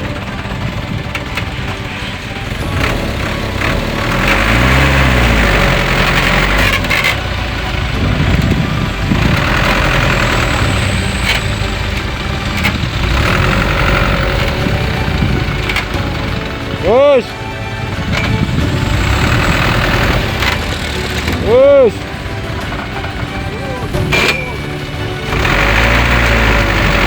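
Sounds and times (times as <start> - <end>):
truck engine revving: 0.0 - 27.0.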